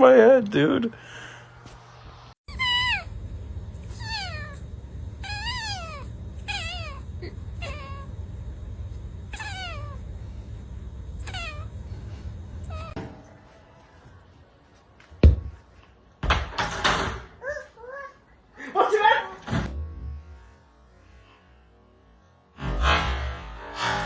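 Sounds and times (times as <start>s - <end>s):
steady low hum: 1.0s - 13.0s
cat meowing: 2.5s - 13.0s.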